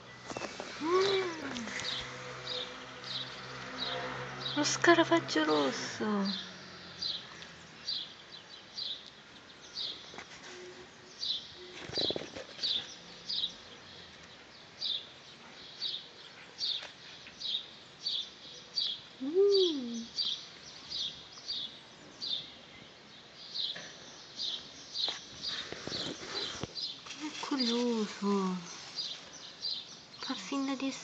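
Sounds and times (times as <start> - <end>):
small bird chirping: 6.2 - 31.0.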